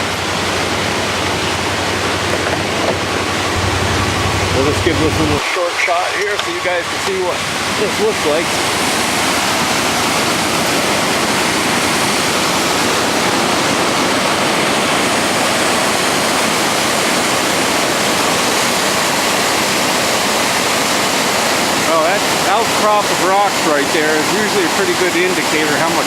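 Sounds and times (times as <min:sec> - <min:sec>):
river rushing over rocks: 0:06.6 - 0:26.0.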